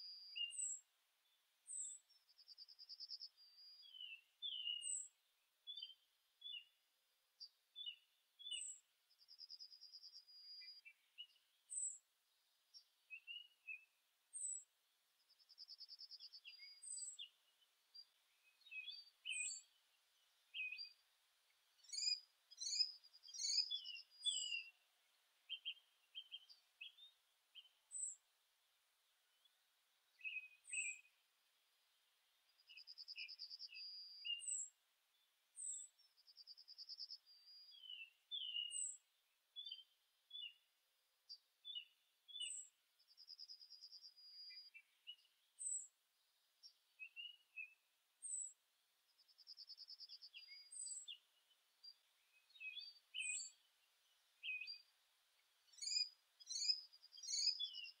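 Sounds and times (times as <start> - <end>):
faint songbirds chirping: 0.0 - 58.0
bird trill: 55.7 - 58.0.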